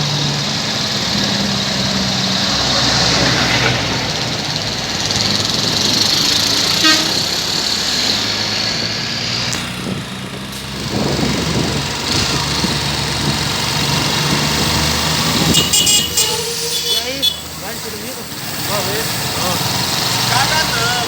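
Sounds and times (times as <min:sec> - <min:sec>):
road noise: 0:00.0 - 0:21.0
truck engine running: 0:00.0 - 0:21.0
truck horn toot: 0:06.7 - 0:07.4, 0:15.3 - 0:17.6.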